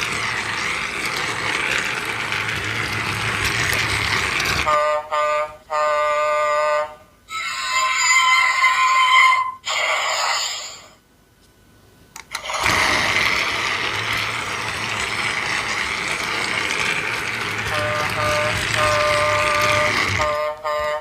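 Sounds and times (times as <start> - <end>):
toy motor whirring: 0.0 - 4.7, 12.3 - 20.6
toy train electronic horn: 4.5 - 9.6, 17.3 - 21.0.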